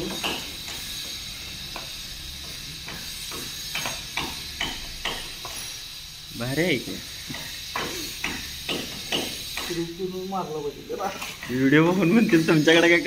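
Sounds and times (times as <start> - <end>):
steady hiss: 0.0 - 13.0
hand tool tapping a pipe fitting: 7.3 - 9.8.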